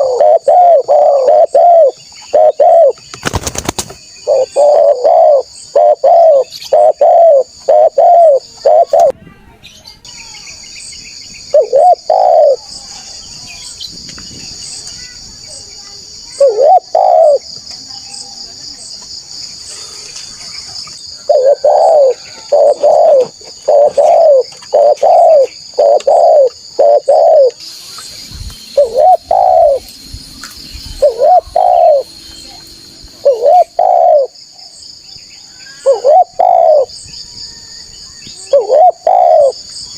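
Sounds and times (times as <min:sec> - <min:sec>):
dove cooing: 0:00.0 - 0:03.0, 0:04.2 - 0:09.1, 0:11.5 - 0:12.6, 0:16.4 - 0:17.4, 0:21.1 - 0:27.6, 0:28.8 - 0:29.9, 0:31.0 - 0:32.1, 0:33.2 - 0:34.4, 0:35.8 - 0:37.0, 0:38.4 - 0:39.6
high-pitched insect drone: 0:19.4 - 0:39.9.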